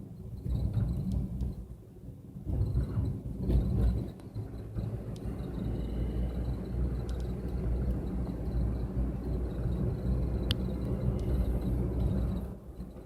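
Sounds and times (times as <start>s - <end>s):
engine and road noise rumble: 0.0s - 13.0s.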